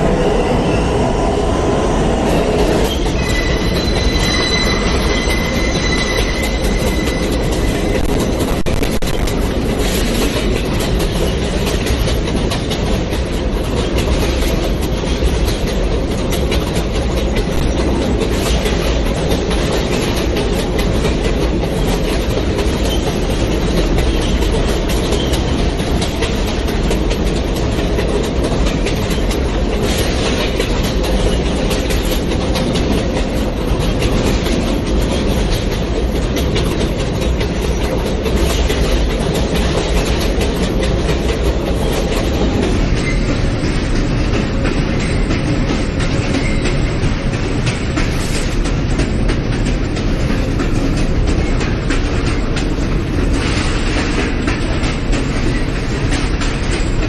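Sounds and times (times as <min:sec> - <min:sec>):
subway train wheels rumbling: 0:00.0 - 0:57.0.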